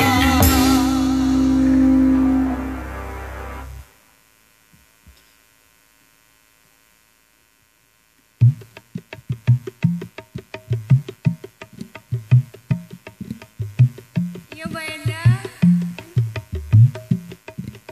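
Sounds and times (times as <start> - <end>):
band music: 0.0 - 3.9
hand drum fast rhythm: 8.4 - 17.9.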